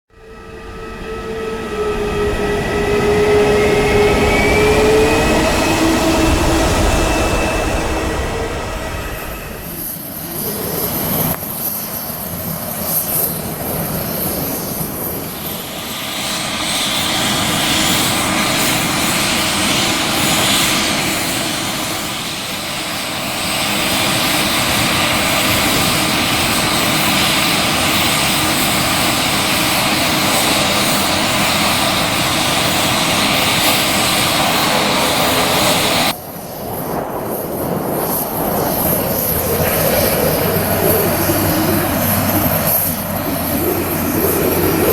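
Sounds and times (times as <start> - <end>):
jet engines running: 0.1 - 44.9.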